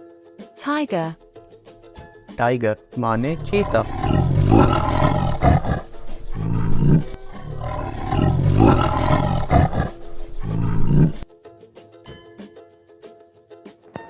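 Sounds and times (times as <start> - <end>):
tiger roaring: 3.1 - 11.2.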